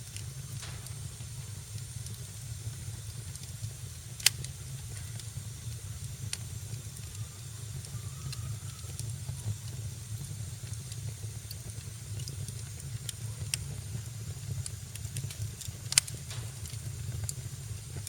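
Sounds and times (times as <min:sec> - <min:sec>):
low steady rumble: 0:00.0 - 0:18.0
wood fire crackling: 0:00.0 - 0:18.0
sharp pops: 0:00.6 - 0:01.2.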